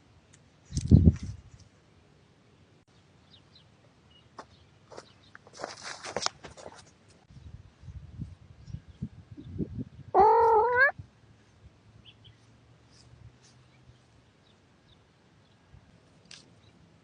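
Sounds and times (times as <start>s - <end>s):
rustling: 4.9s - 7.3s
cat meowing: 10.2s - 11.0s.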